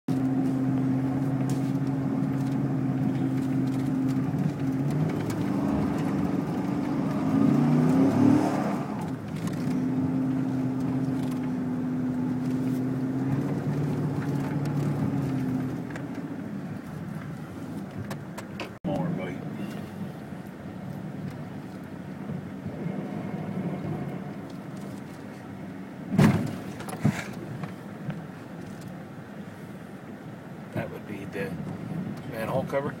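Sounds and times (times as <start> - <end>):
truck engine running: 0.1 - 8.2.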